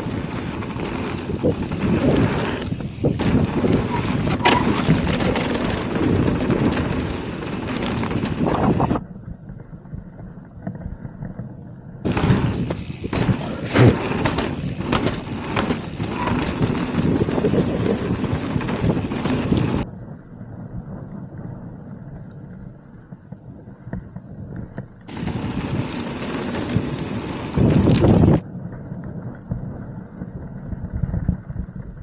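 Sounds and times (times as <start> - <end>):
bike clattering over rocks: 0.0 - 9.0, 12.1 - 19.8
bike tyre noise: 0.0 - 32.0
wind rushing over microphone: 0.0 - 32.0.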